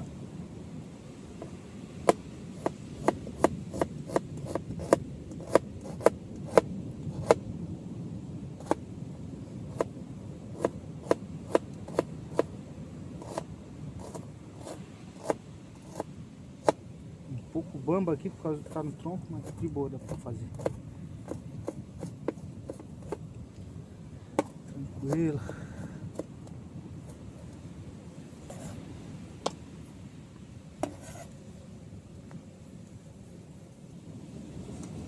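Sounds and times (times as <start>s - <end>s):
knife chopping on wooden board: 1.4s - 7.4s, 8.6s - 8.8s, 9.7s - 9.9s, 10.6s - 12.5s, 13.2s - 16.8s, 18.7s - 23.2s, 24.4s - 26.4s, 28.5s - 28.8s, 30.8s - 31.3s.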